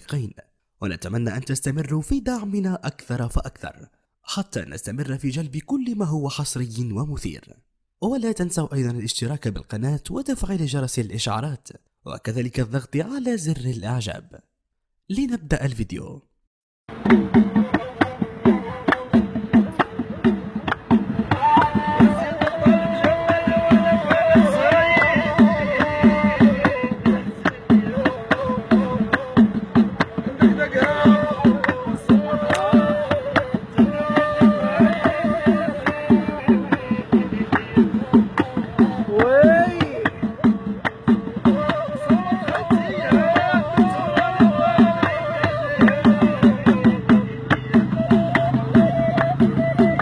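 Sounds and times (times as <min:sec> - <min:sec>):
hand drum beat: 0:16.9 - 0:50.0
reed flute melody: 0:18.4 - 0:40.7, 0:41.4 - 0:50.0
reed flute long notes: 0:21.3 - 0:25.7, 0:30.3 - 0:37.4, 0:47.7 - 0:50.0.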